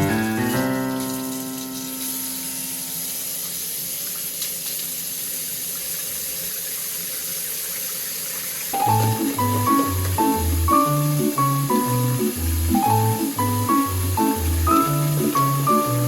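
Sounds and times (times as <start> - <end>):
background music: 0.0 - 1.4, 8.8 - 16.0
tap water running: 0.0 - 16.0.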